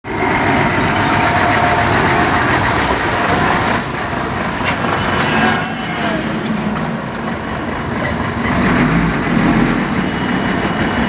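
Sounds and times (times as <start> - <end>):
heavy vehicle rumbling: 0.0 - 11.0
brief high squeals: 5.3 - 6.2.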